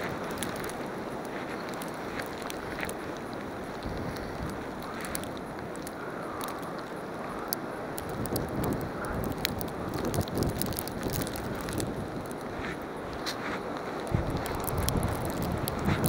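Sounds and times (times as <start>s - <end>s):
wind noise on microphone: 0.0s - 16.0s
footsteps in deep snow: 11.0s - 16.0s.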